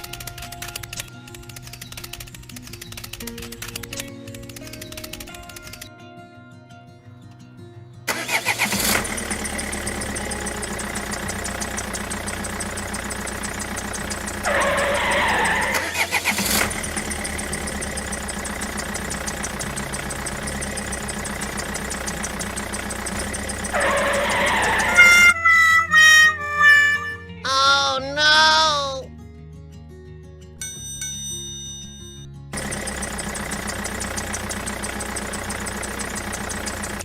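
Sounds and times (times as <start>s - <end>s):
engine running with even pulse: 0.0s - 5.9s, 8.1s - 25.4s, 32.5s - 37.0s.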